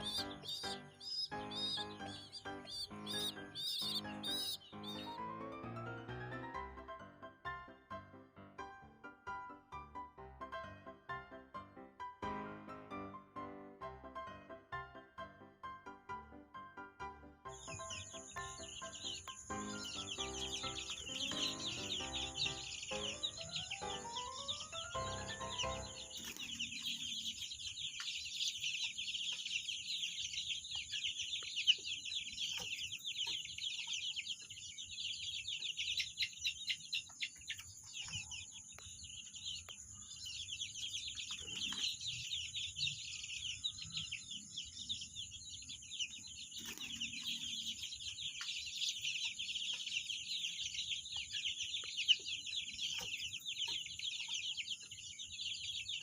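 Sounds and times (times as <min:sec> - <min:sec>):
high-pitched chirring: 0:00.0 - 0:05.1
chickens clucking: 0:00.0 - 0:05.2, 0:17.6 - 0:45.2, 0:46.0 - 0:56.0.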